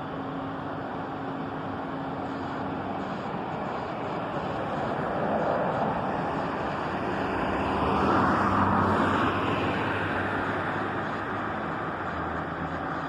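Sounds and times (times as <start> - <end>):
road traffic hum: 0.0 - 13.0
vehicle passing: 4.8 - 12.8.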